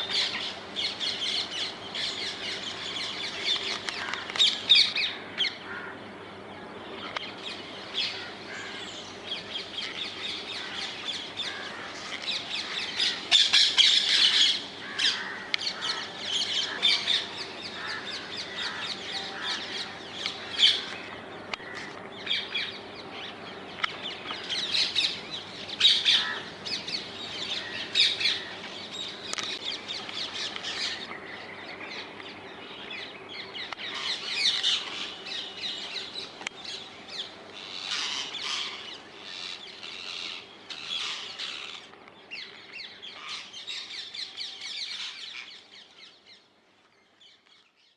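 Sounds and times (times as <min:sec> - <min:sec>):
parakeets squawking: 0:00.0 - 0:05.9, 0:07.4 - 0:21.0, 0:24.0 - 0:31.1, 0:33.5 - 0:41.9.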